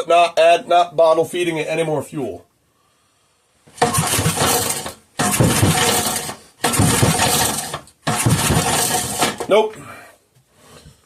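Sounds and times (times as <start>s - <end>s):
engine cranking on recoil starter: 3.8s - 9.5s.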